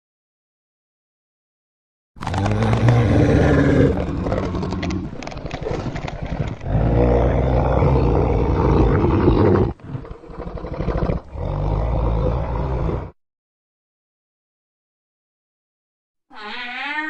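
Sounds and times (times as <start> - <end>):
dinosaur roar: 2.2 - 13.2.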